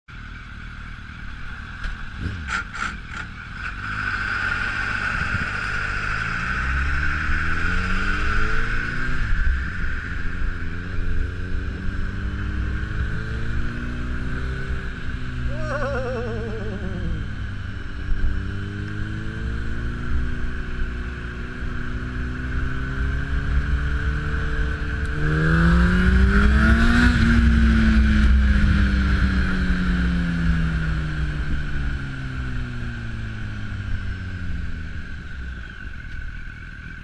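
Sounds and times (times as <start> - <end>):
car engine accelerating: 1.8 - 20.8.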